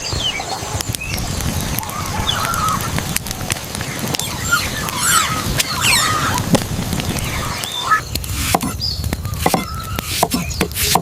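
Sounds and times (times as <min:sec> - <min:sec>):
animal squeaks and chirping calls: 0:04.2 - 0:06.4
sharp clicks and knocks: 0:08.2 - 0:11.0.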